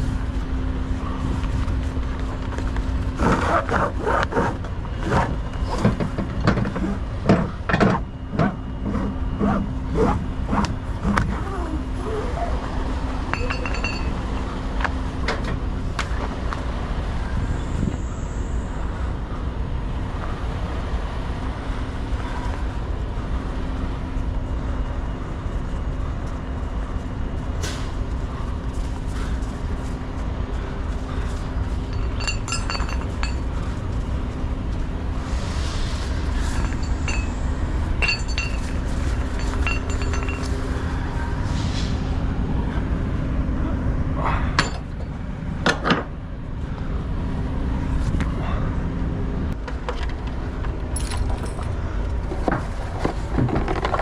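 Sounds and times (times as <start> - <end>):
diesel truck engine rumble: 0.0 - 54.0
sharp metallic clinks: 13.3 - 14.6, 31.7 - 33.7, 36.4 - 40.9.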